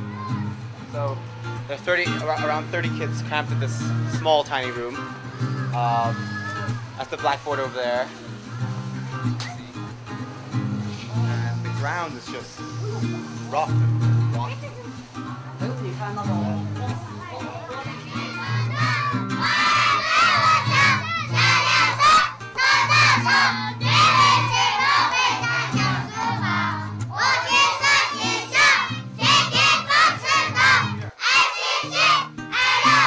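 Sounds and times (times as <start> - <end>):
children shouting and cheering: 0.0 - 0.8, 4.0 - 7.0, 16.3 - 33.0
background music: 0.0 - 33.0.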